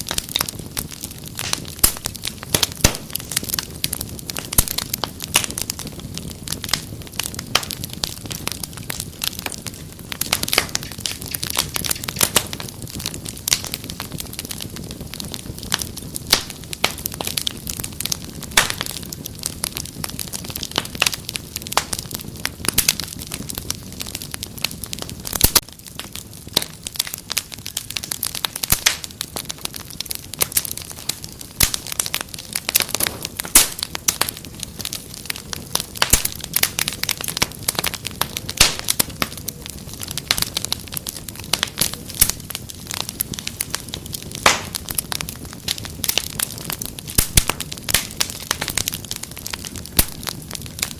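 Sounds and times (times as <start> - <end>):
low rushing of flames: 0.0 - 50.9
wood fire crackling: 0.0 - 50.9
sharp pops and snaps: 1.0 - 3.4, 4.5 - 5.5, 10.2 - 13.8, 18.5 - 19.0, 25.3 - 26.7, 31.6 - 43.5, 44.1 - 45.1, 45.8 - 50.9.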